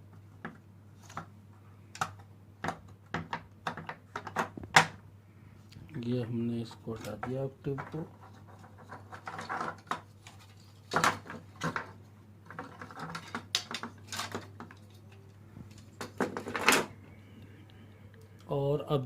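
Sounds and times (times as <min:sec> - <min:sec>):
faint low hum: 0:00.0 - 0:19.0
plastic scraping clatter: 0:07.0 - 0:15.0, 0:15.7 - 0:16.9.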